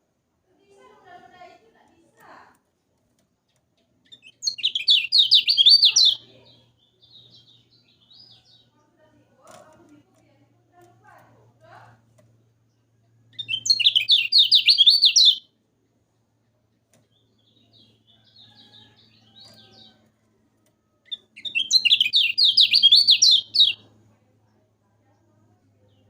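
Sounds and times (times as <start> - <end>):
faint low hum: 0.0 - 26.0
songbird chirping: 1.0 - 26.0
bird twittering: 4.1 - 6.3, 13.3 - 15.4, 21.1 - 23.8.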